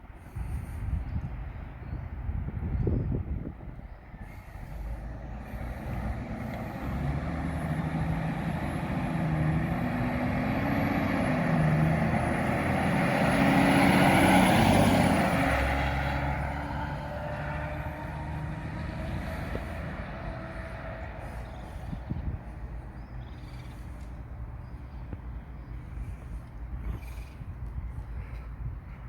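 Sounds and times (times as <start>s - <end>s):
heavy vehicle driving past: 4.2s - 24.7s.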